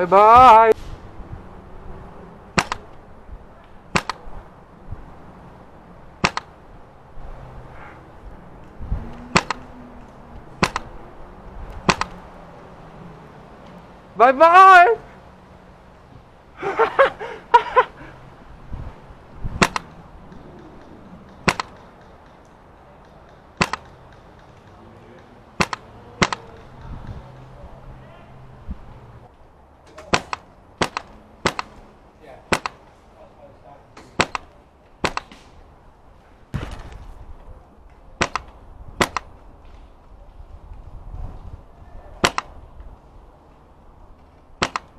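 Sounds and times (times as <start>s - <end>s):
wind buffeting microphone: 0.8s - 14.0s, 18.0s - 29.6s, 35.6s - 44.6s
airsoft rifle shots: 2.5s - 2.9s, 3.9s - 4.3s, 6.2s - 6.6s, 9.3s - 9.6s, 10.6s - 11.0s, 11.8s - 12.2s, 19.6s - 20.0s, 21.3s - 22.4s, 23.2s - 24.6s, 25.6s - 26.8s, 29.9s - 31.8s, 32.5s - 32.8s, 34.1s - 35.5s, 38.2s - 39.4s, 42.2s - 42.6s, 44.6s - 44.9s
airsoft rifle double clicks: 10.6s - 10.9s, 11.8s - 12.2s, 38.2s - 39.3s, 42.2s - 42.6s, 44.6s - 44.9s.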